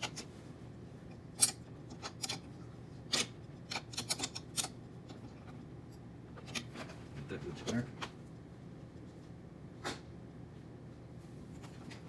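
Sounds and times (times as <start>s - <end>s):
small metal parts clicking: 1.4s - 2.4s.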